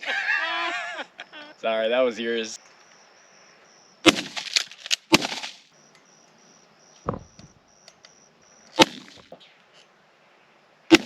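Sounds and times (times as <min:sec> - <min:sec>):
insect buzz: 0:00.2 - 0:09.4
shotgun shots with echo: 0:04.0 - 0:04.5, 0:08.8 - 0:09.2.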